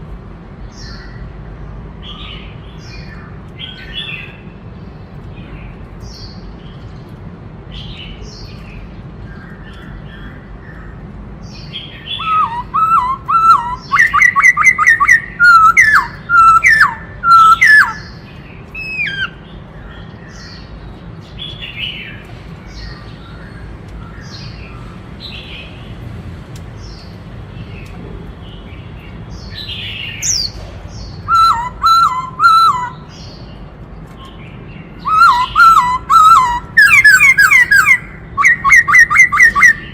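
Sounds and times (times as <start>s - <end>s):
bird singing whistled notes: 11.6s - 19.4s, 29.4s - 33.4s, 35.0s - 39.9s.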